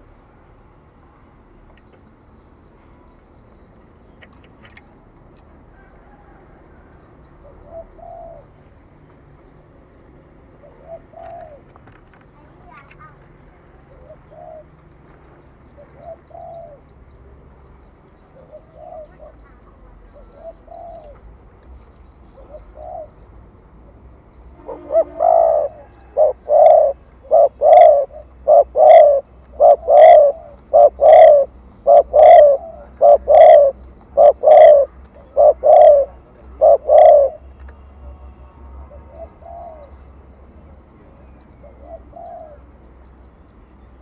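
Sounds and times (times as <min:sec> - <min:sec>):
dove cooing: 0:05.7 - 0:08.6, 0:10.6 - 0:11.8, 0:13.7 - 0:14.8, 0:15.6 - 0:17.0, 0:18.3 - 0:21.3, 0:22.2 - 0:23.3, 0:24.6 - 0:40.2, 0:41.5 - 0:42.7.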